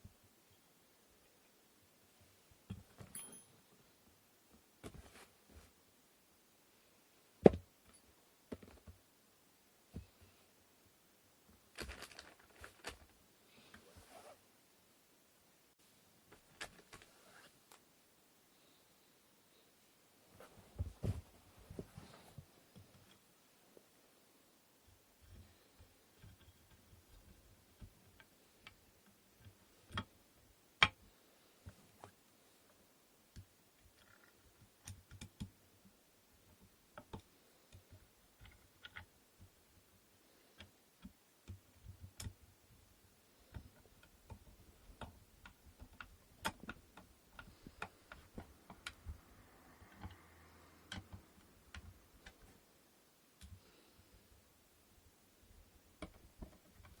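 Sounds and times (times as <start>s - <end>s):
wooden loom parts clicking: 24.9s - 30.2s, 36.3s - 52.6s.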